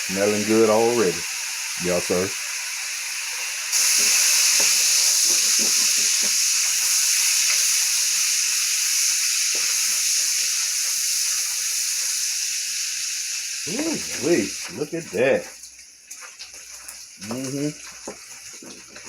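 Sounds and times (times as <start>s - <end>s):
bacon sizzling in a wok: 0.0s - 19.0s.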